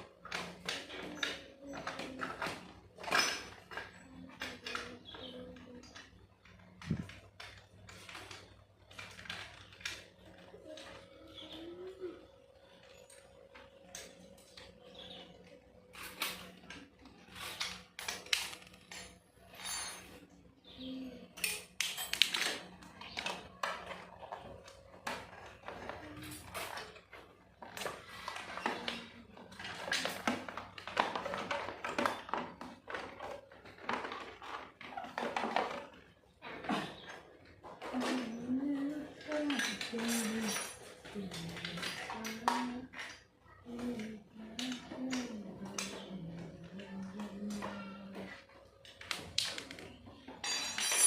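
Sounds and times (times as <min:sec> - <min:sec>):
metal parts and tools clinking: 0:00.2 - 0:10.9, 0:15.9 - 0:20.4, 0:21.3 - 0:43.2, 0:48.8 - 0:51.0
metal parts and tools scraping: 0:15.9 - 0:20.4, 0:39.1 - 0:43.2, 0:50.3 - 0:51.0.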